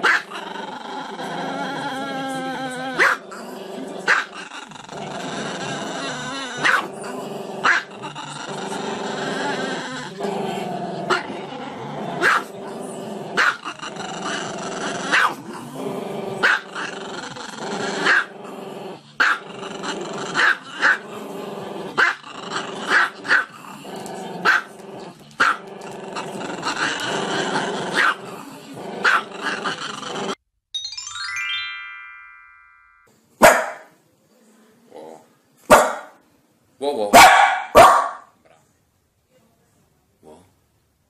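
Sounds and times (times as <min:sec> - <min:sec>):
dog barking: 0:00.0 - 0:00.3, 0:03.0 - 0:03.2, 0:04.1 - 0:04.3, 0:06.6 - 0:06.9, 0:07.6 - 0:07.9, 0:12.2 - 0:12.5, 0:13.4 - 0:13.6, 0:15.1 - 0:15.4, 0:19.2 - 0:19.4, 0:22.9 - 0:23.5, 0:24.4 - 0:24.7, 0:28.0 - 0:28.2, 0:29.0 - 0:29.3, 0:33.4 - 0:33.9, 0:35.7 - 0:36.2, 0:37.1 - 0:38.3
dog growling: 0:00.0 - 0:30.4.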